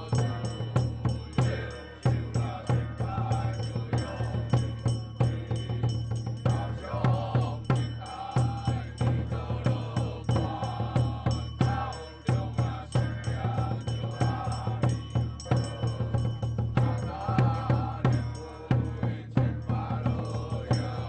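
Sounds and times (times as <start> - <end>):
chanted melody: 0.0 - 21.0
drums beating: 0.0 - 21.0.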